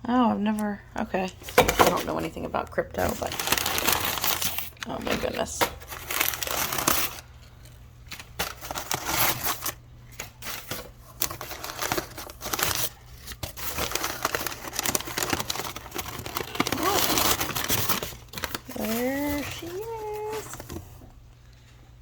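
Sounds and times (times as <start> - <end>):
packing material crinkling and tearing: 1.4 - 21.1.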